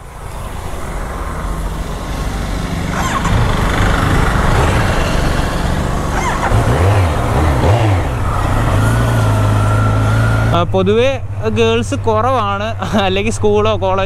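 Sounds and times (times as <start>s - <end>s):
rush of noise: 0.0s - 10.8s
motorcycle engine running: 1.4s - 10.4s.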